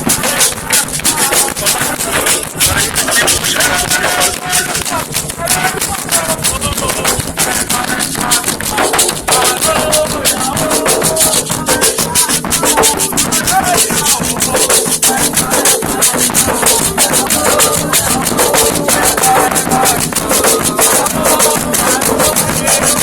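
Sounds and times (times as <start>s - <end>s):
hand drums beating: 0.0s - 23.0s
rattles shaking: 0.0s - 23.0s.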